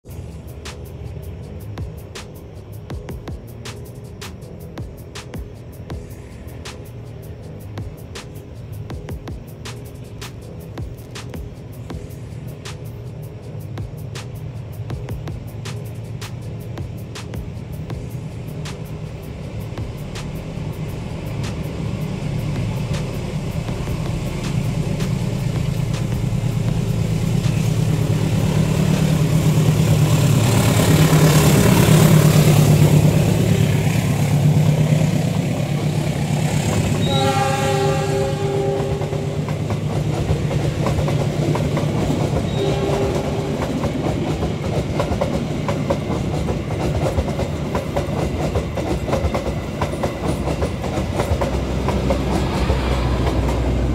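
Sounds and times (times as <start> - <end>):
locomotive engine drone: 0.0 - 53.9
train wheels clattering on rails: 0.2 - 53.9
train horn chord: 36.7 - 39.8, 42.4 - 44.0.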